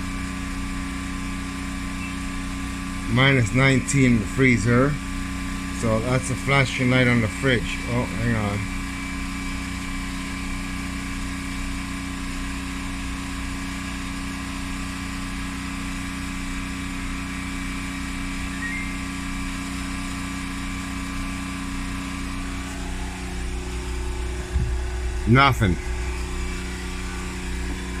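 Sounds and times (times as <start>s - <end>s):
mechanical hum with fixed tones: 0.0s - 28.0s
low rumble: 23.6s - 28.0s.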